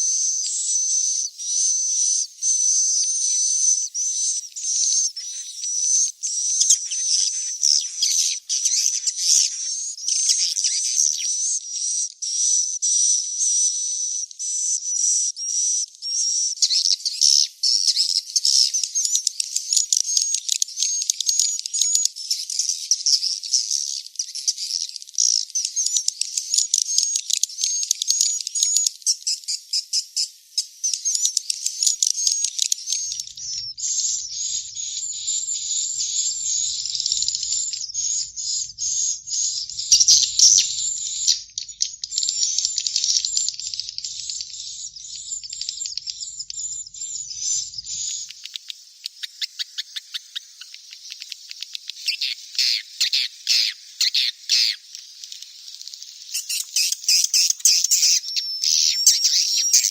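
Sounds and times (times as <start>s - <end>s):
swiftlet chicks chirping: 0.0s - 11.6s, 30.6s - 59.9s.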